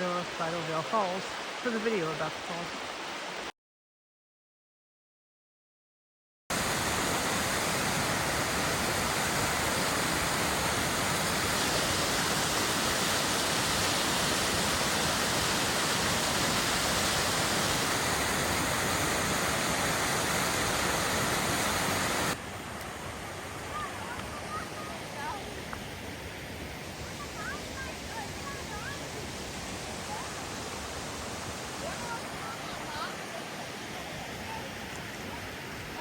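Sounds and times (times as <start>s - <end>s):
waterfall rushing: 0.0s - 3.5s, 6.5s - 36.0s.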